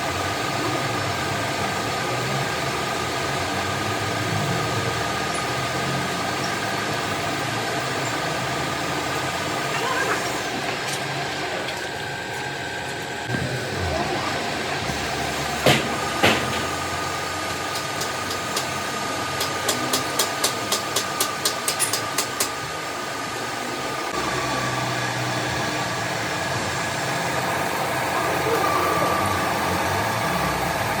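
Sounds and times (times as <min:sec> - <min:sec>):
workshop machine running: 0:00.0 - 0:31.0
loud sharp knocks: 0:15.6 - 0:17.0.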